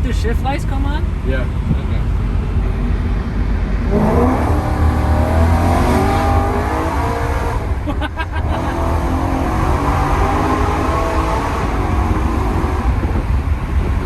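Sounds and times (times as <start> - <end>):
exhaust crackles: 0.0 - 14.0
car engine accelerating hard: 1.0 - 14.0.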